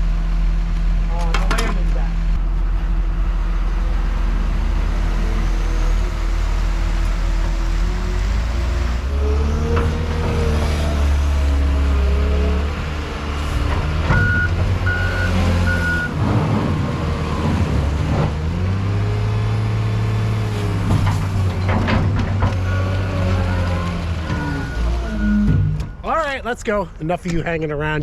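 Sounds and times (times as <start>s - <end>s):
heavy vehicle engine running: 0.0s - 27.0s
backup alarm beeps: 14.2s - 16.2s.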